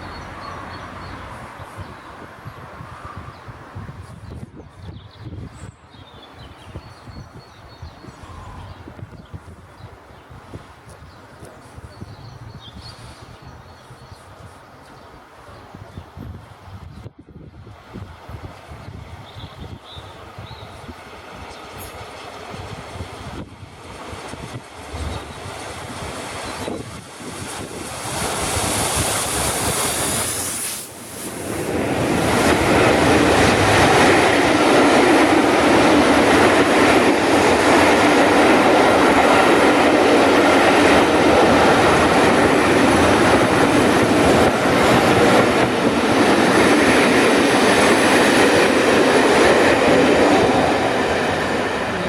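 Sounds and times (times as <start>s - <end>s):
train wheels rushing on rails: 17.7s - 52.0s.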